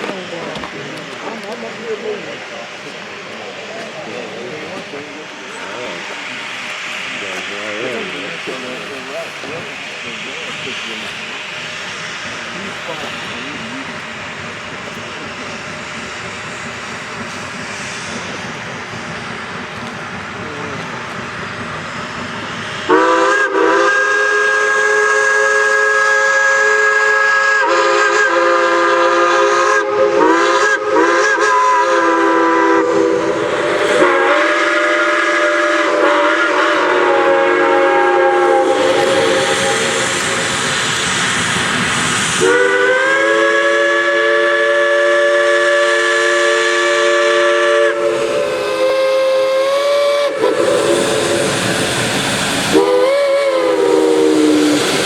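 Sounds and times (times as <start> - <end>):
steam hissing: 0.0 - 55.0
steam locomotive chime whistle: 22.9 - 40.6, 42.4 - 51.8, 52.7 - 55.0.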